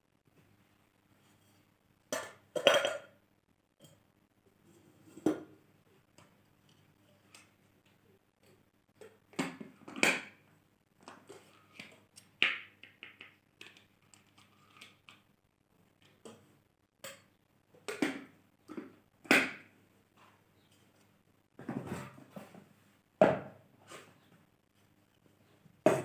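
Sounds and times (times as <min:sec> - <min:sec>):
clicks taps and knocks: 0:11.8 - 0:15.3.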